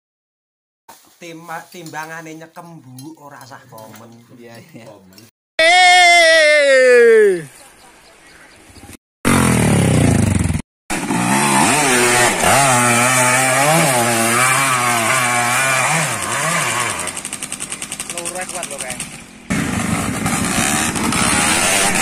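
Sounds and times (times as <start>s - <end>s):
dirt bike engine revving: 9.3s - 22.0s.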